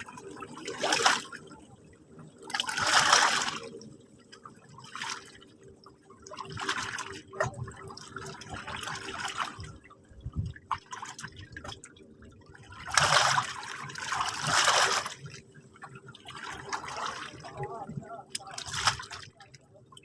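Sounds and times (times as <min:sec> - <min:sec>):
sea water washing over shore: 0:00.0 - 0:01.5, 0:02.5 - 0:03.9, 0:12.7 - 0:15.4
water trickling and splashing: 0:00.0 - 0:20.0.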